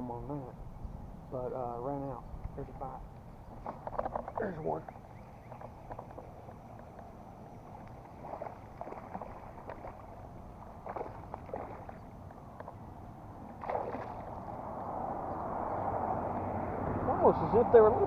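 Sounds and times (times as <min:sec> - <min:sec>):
small knocks: 0:03.5 - 0:07.1
water sounds: 0:03.6 - 0:15.0
fish splashing: 0:08.0 - 0:12.2, 0:13.5 - 0:14.6.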